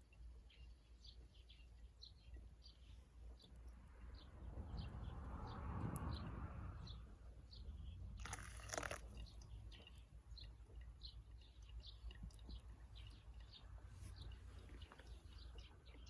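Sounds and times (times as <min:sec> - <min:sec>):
small bird chirping: 0:06.8 - 0:16.0.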